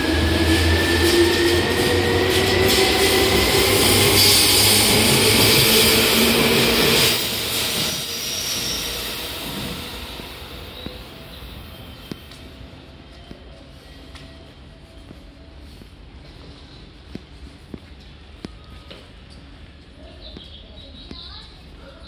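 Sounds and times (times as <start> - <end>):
electric train running noise: 0.0 - 14.8.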